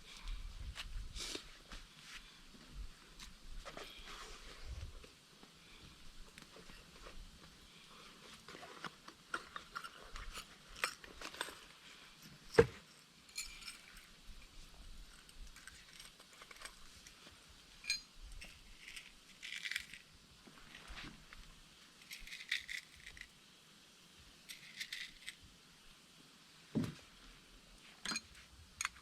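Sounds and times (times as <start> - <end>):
small hard objects clinking: 13.3 - 14.6, 17.8 - 20.9, 22.0 - 23.3, 24.5 - 25.4.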